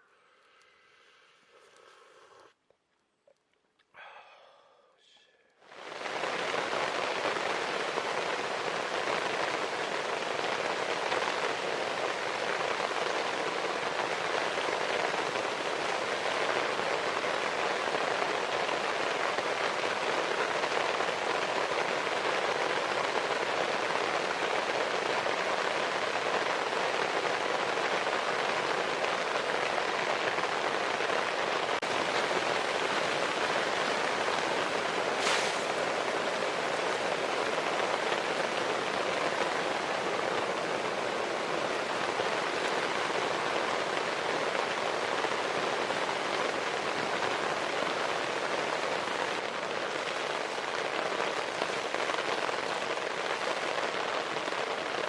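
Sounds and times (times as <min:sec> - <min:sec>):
heavy rain: 0:05.6 - 0:55.0.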